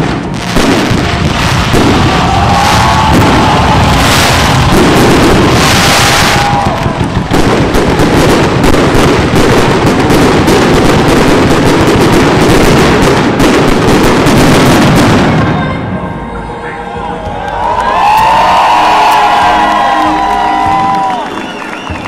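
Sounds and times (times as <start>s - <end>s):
fountain fireworks hissing: 0.0s - 15.6s
fireworks banging and crackling: 0.0s - 16.1s, 18.0s - 22.0s.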